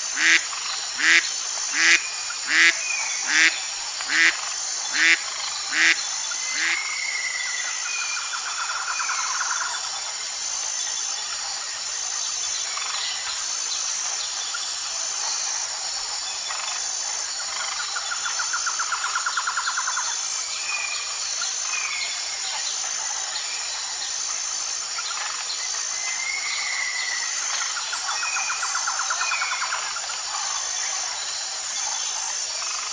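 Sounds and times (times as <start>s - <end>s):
high-pitched pulsing chirr: 0.0s - 7.8s.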